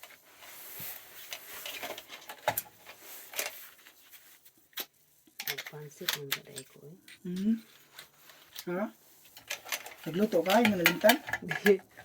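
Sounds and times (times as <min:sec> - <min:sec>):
small objects clicking and rustling: 0:01.2 - 0:04.0, 0:04.7 - 0:07.2, 0:07.8 - 0:12.0.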